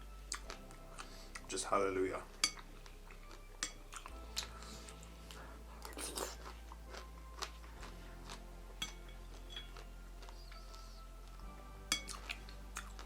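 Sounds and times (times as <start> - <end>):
chewing with wet crunches: 2.5 - 10.8, 12.0 - 13.0.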